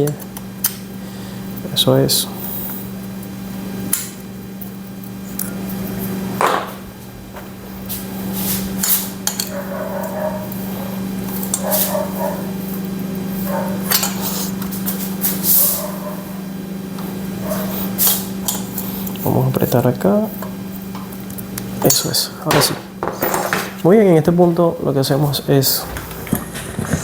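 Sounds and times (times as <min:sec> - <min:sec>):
steady low hum: 0:00.0 - 0:27.0
metal tools clinking: 0:21.8 - 0:23.8.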